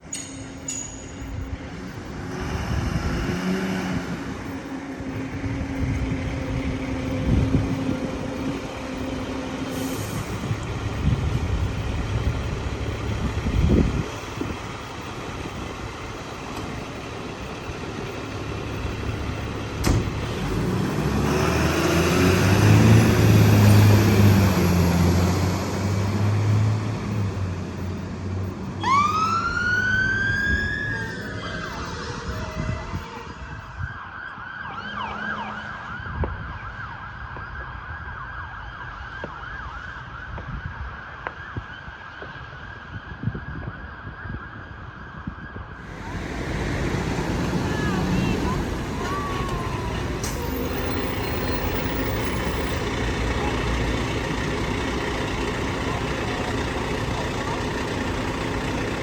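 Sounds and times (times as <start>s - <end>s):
heavy vehicle engine passing: 1.3s - 33.6s, 45.8s - 59.0s
emergency vehicle siren: 1.3s - 59.0s.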